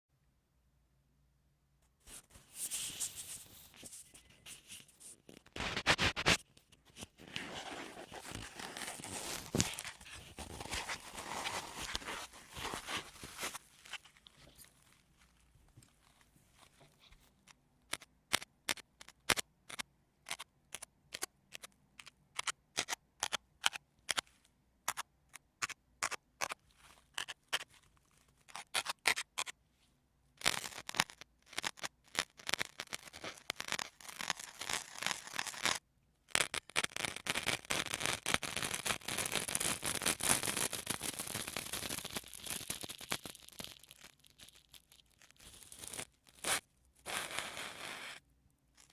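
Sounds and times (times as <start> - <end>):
sponge squeezed and scratched: 40.2 - 48.2.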